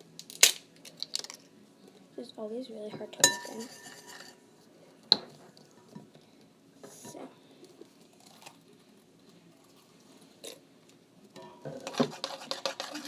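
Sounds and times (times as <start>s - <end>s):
spoon scraping a bowl: 3.2s - 4.4s, 11.4s - 13.0s.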